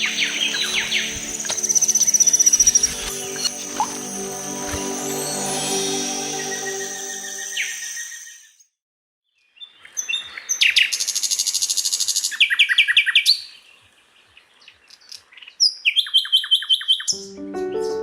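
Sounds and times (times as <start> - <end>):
nightingale singing: 0.0 - 4.8, 6.3 - 8.6, 14.4 - 18.0.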